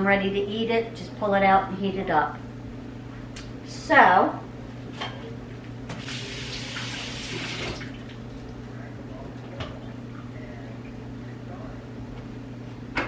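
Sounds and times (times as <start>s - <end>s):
low steady hum: 0.0s - 13.0s
kitchen tap running: 5.9s - 8.3s.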